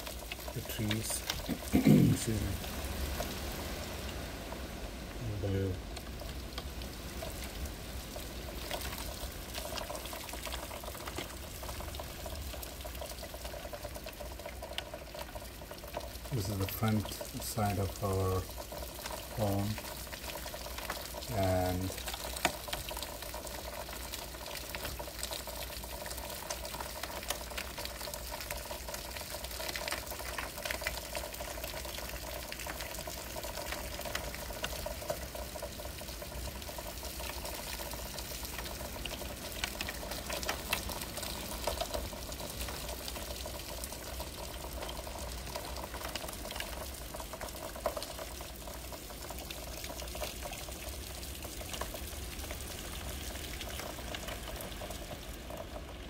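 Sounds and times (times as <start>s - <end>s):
heavy rain and wind: 0.0s - 56.0s
raindrops ticking on window glass: 0.0s - 56.0s.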